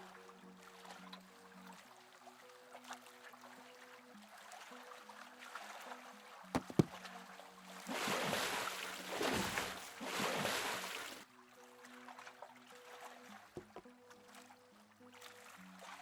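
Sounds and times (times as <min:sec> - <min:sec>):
soft music: 0:00.0 - 0:16.0
water splashing and sloshing: 0:00.0 - 0:16.0
sharp knocks: 0:06.6 - 0:06.9.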